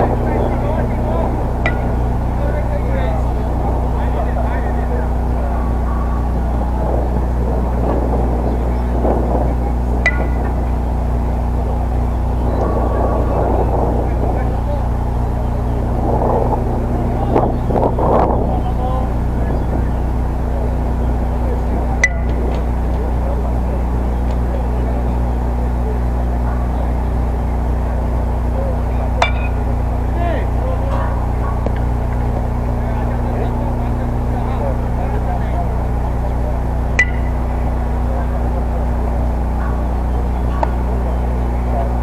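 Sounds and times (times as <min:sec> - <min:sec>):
distant voices: 0:00.0 - 0:42.0
steady low rumble: 0:00.0 - 0:42.0
metal bat striking ball: 0:10.0 - 0:10.6, 0:29.2 - 0:29.6, 0:36.9 - 0:37.4.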